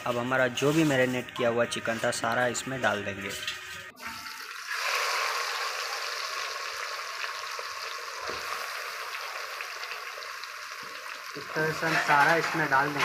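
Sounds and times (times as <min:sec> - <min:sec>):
chicken sizzling in hot oil: 0:04.0 - 0:13.0.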